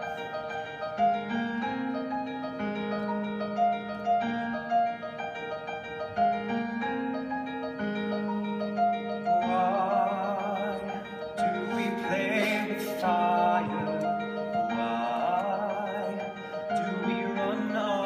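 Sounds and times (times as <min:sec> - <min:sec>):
piano chords: 0:00.0 - 0:18.0
person singing with vibrato: 0:09.4 - 0:18.0.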